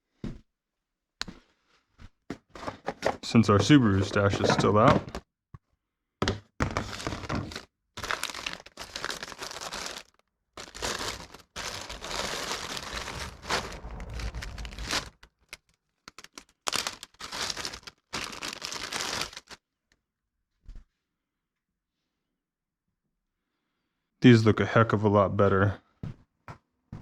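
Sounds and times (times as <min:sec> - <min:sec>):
plastic packaging crinkling: 0:06.6 - 0:19.6.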